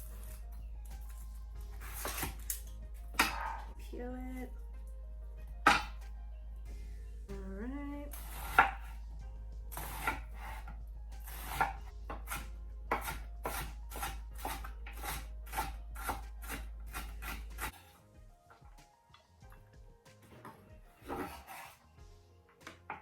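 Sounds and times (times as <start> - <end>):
knife chopping onion on cutting board: 1.8 - 2.4, 3.2 - 3.6, 5.7 - 6.0, 8.1 - 9.0, 9.7 - 17.9, 21.0 - 21.8.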